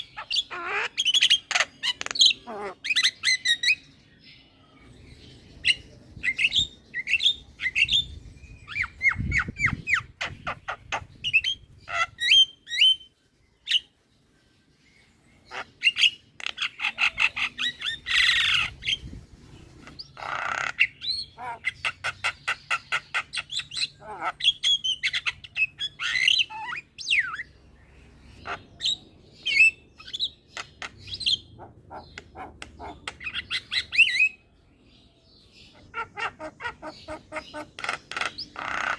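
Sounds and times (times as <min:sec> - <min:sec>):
harsh rasping squawks: 0:19.8 - 0:27.4, 0:35.8 - 0:38.9.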